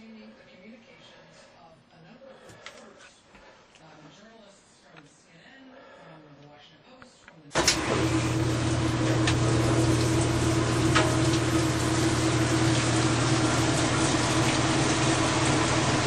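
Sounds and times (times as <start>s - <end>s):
washing machine hum: 7.5s - 16.0s
water rushing into washing machine: 7.6s - 16.0s.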